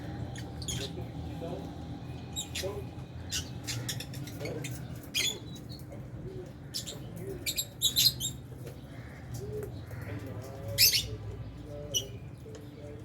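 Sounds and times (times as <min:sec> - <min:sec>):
lovebirds chirping: 0:00.0 - 0:01.3, 0:01.9 - 0:13.0.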